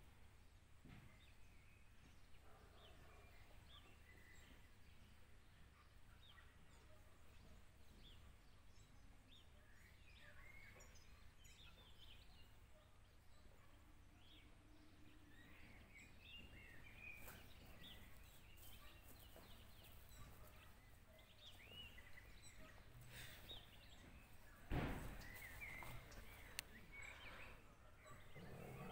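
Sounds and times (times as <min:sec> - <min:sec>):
small birds chirping: 0:00.0 - 0:28.9.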